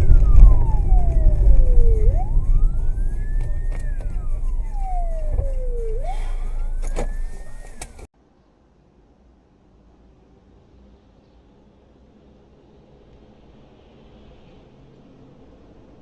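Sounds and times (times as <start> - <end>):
emergency siren wailing: 0.0 - 8.1
low rumble of vehicles: 0.0 - 16.0.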